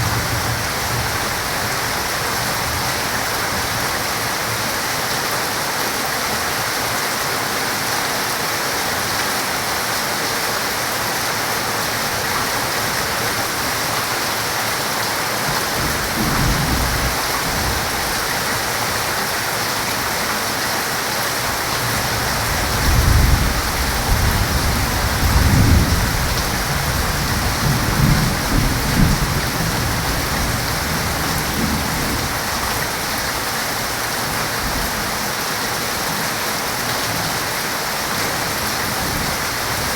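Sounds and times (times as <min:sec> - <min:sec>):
heavy rain falling: 0:00.0 - 0:39.9
thunder rumbling: 0:21.9 - 0:32.7.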